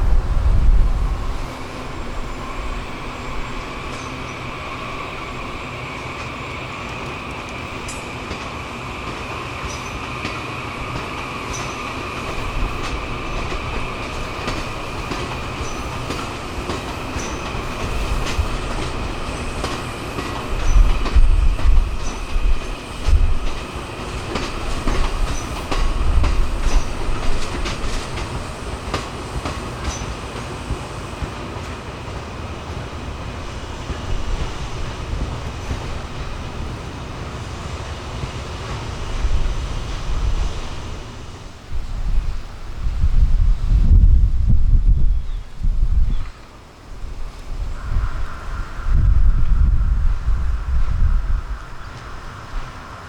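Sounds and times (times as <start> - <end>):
heavy low rumbling: 0.0 - 3.8
train rolling along track: 0.0 - 53.0
wheels clicking over rail joints: 0.7 - 41.6.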